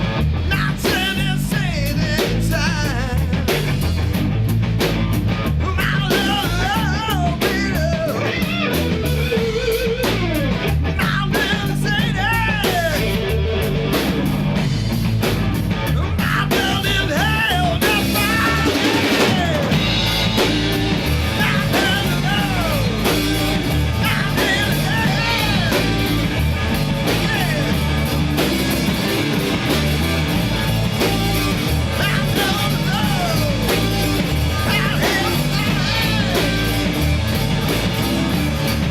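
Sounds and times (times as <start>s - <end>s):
drums: 0.0s - 38.9s
electric guitar: 0.0s - 38.9s
person singing: 5.7s - 8.8s, 16.0s - 27.8s, 31.1s - 37.1s.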